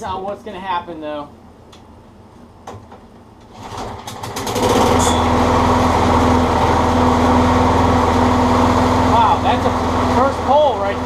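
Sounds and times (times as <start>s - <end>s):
lawn mower engine pull-started: 3.5s - 11.0s.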